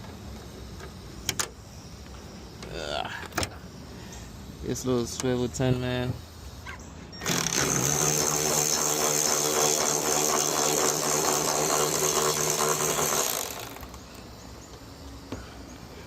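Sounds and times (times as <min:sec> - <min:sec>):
power tool whining and rattling: 0:06.1 - 0:16.0.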